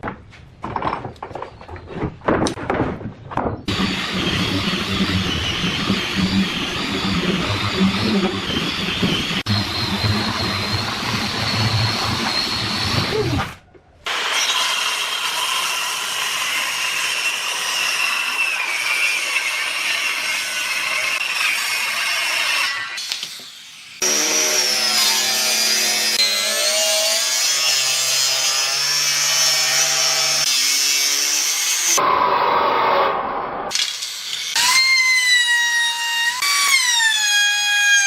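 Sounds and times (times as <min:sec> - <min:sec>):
wood cutting noise: 0:03.6 - 0:38.0
power tool motor whining: 0:03.7 - 0:13.6.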